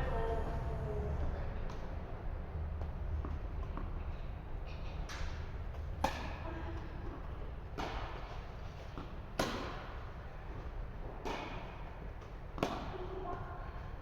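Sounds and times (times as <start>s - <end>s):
tennis ball struck by rackets: 6.0s - 6.4s, 7.8s - 8.4s, 9.0s - 10.0s, 12.6s - 12.9s.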